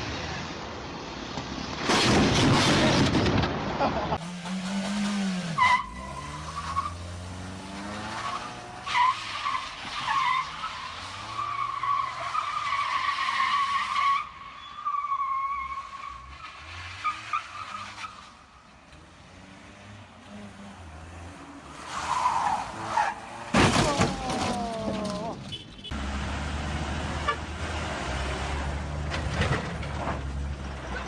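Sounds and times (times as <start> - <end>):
car tyres squealing: 5.5 - 18.6, 21.7 - 25.7.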